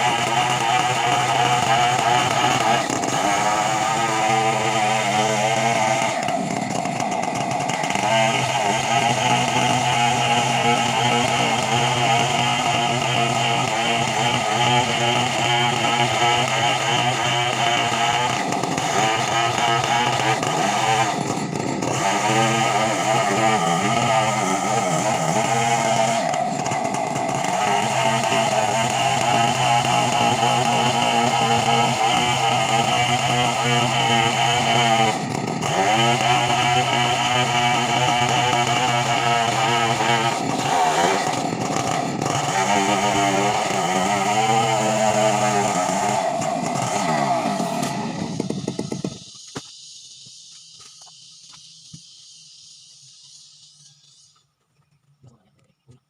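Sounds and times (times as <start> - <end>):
chainsaw running at high revs: 0.0 - 54.3.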